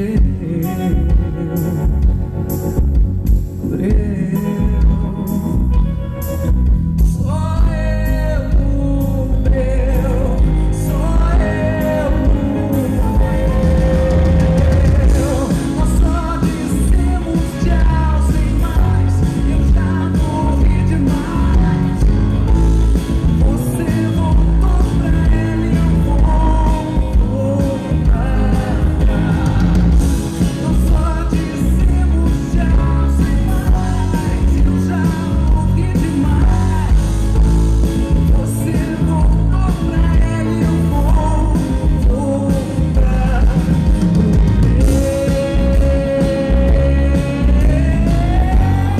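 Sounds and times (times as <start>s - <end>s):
live soul-rock band: 0.0s - 48.9s
woman singing: 44.8s - 48.9s.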